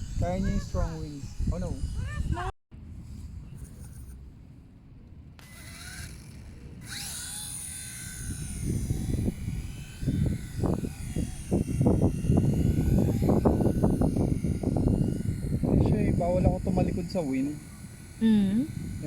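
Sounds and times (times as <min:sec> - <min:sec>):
toy helicopter rotors whining: 0:00.0 - 0:02.5, 0:05.4 - 0:19.0
wind buffeting microphone: 0:00.0 - 0:02.5, 0:06.8 - 0:17.2.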